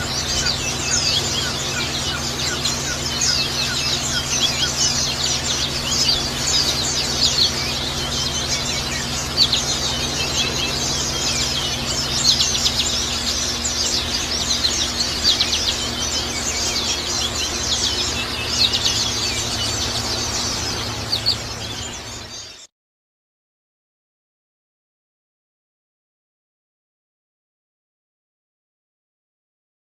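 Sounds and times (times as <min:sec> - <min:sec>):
birds twittering: 0:00.0 - 0:22.7
low hum: 0:00.0 - 0:22.7.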